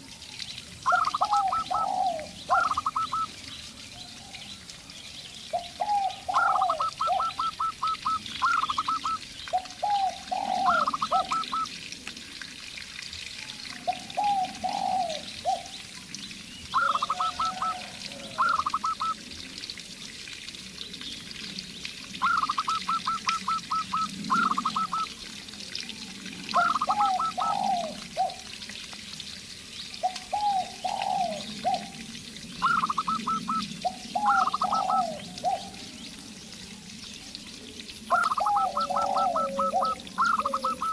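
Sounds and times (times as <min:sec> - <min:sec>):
doves cooing: 0:00.8 - 0:03.3, 0:05.5 - 0:11.7, 0:13.8 - 0:15.8, 0:16.8 - 0:19.2, 0:22.2 - 0:25.2, 0:26.5 - 0:28.6, 0:30.0 - 0:35.9, 0:38.1 - 0:40.9.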